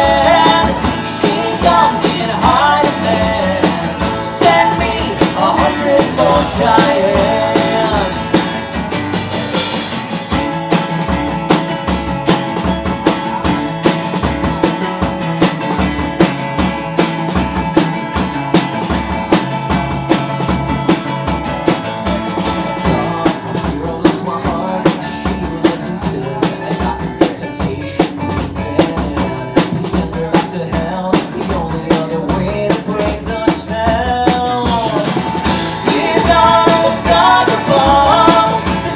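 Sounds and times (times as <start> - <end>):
bass guitar: 0.0 - 38.9
drum kit beat: 0.0 - 38.9.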